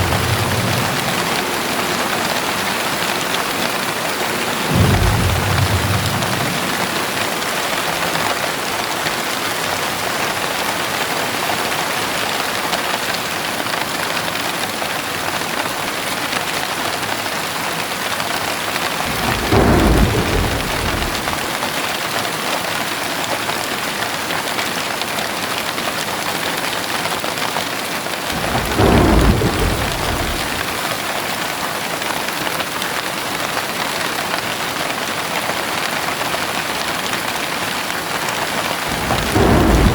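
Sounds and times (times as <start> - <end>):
thunder rolling: 0.0 - 7.8, 19.0 - 21.8, 28.3 - 31.0, 38.5 - 39.9
heavy rain pouring: 0.0 - 39.9.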